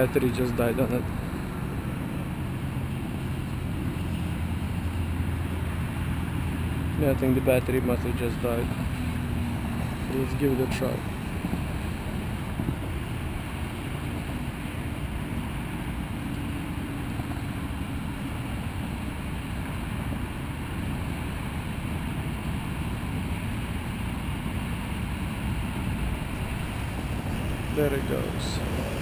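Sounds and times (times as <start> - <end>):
low rumbling wind noise: 0.0 - 29.0.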